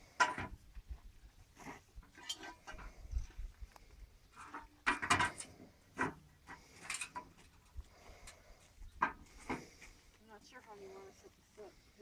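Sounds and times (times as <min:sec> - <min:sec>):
hard objects knocking and clattering: 0:04.4 - 0:07.4.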